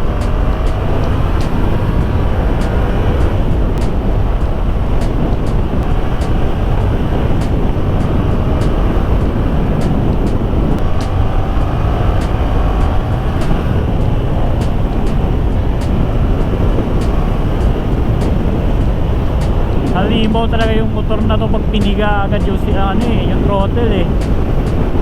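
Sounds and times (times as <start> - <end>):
motorcycle engine: 0.0 - 25.0
wind rush on microphone: 0.0 - 25.0.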